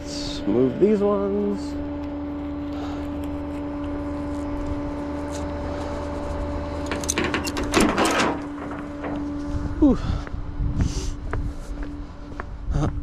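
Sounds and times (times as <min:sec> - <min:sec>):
vehicle engine hum: 0:00.0 - 0:13.0
metallic clattering and rattling: 0:06.8 - 0:09.5.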